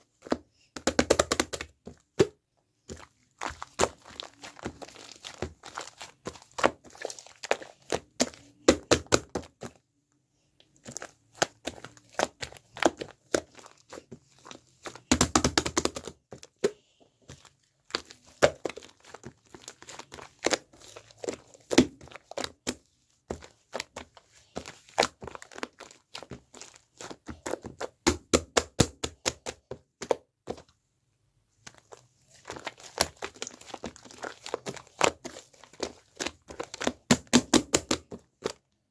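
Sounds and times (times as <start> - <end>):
slime crackling and popping: 3.1 - 9.3, 31.7 - 38.6.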